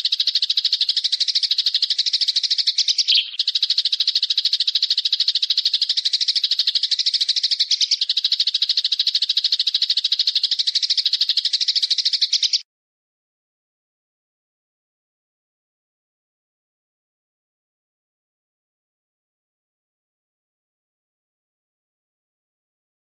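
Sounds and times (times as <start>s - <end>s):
songbird chattering trill: 0.0s - 12.6s.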